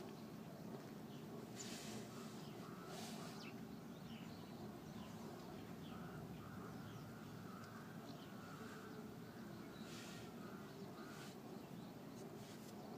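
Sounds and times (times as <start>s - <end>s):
faint bird chirps: 1.1s - 12.9s
brief hiss: 1.6s - 3.4s.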